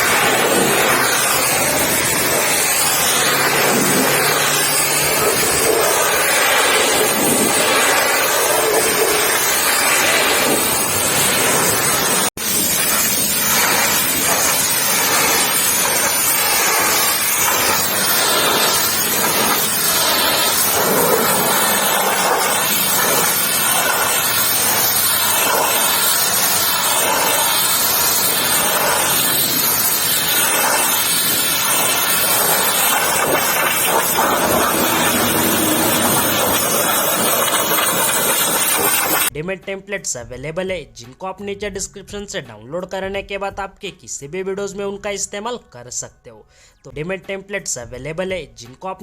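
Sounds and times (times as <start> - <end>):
pressure washer spraying water: 0.0 - 39.3.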